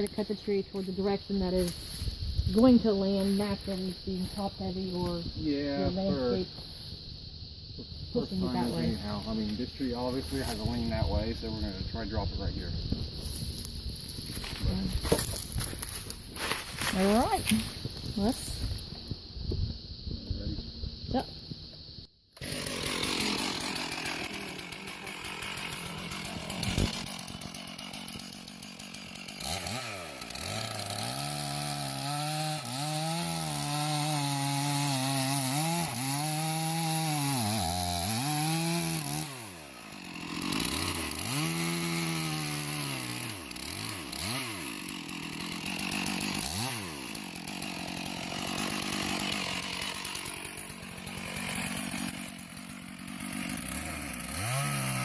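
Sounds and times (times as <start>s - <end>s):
chainsaw cutting tree trunk: 0.0s - 5.2s, 13.1s - 18.6s, 22.4s - 55.0s.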